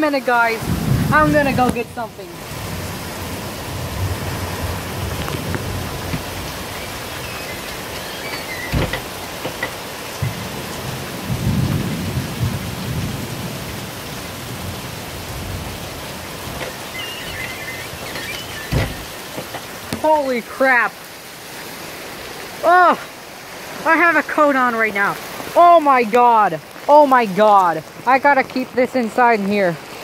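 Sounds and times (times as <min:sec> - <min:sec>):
heavy rain downpour: 0:00.0 - 0:30.0.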